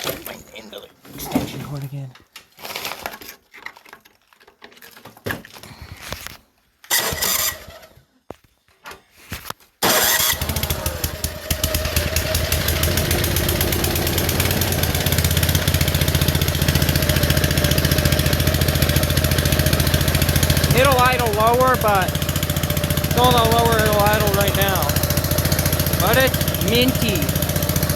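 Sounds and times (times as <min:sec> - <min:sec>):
snowblower engine running: 0:09.8 - 0:27.9.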